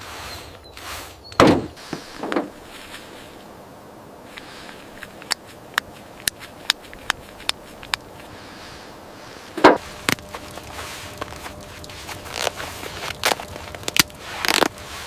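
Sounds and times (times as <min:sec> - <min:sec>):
loud thump: 0:01.4 - 0:02.5.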